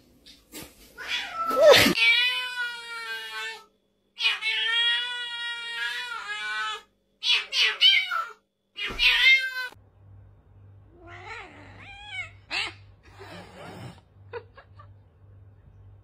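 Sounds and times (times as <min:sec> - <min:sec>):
low steady hum: 0:08.5 - 0:16.0.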